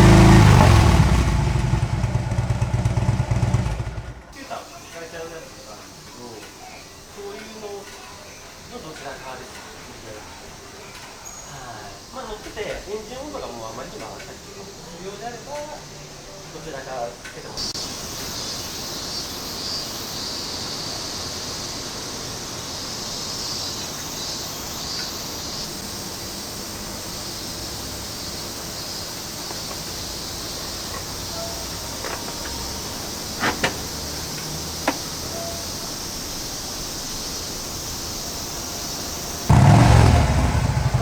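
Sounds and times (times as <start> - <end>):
background hiss: 0.0 - 41.0.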